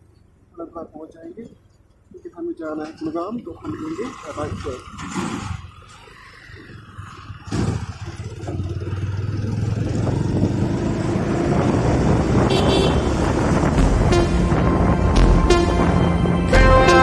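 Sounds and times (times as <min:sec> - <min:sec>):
road and wind noise: 0:00.0 - 0:17.0
motorcycle engine: 0:02.8 - 0:17.0
vehicle horn toot: 0:12.4 - 0:13.2, 0:14.0 - 0:14.7, 0:15.4 - 0:17.0.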